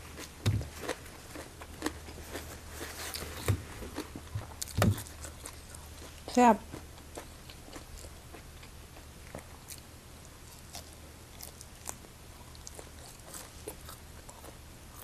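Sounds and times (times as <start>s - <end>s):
faint low hum: 0.0s - 15.0s
person chewing: 0.0s - 15.0s.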